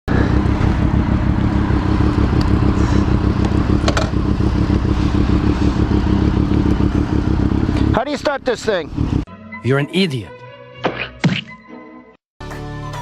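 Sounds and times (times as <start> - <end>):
motorcycle engine idling: 0.1 - 9.2.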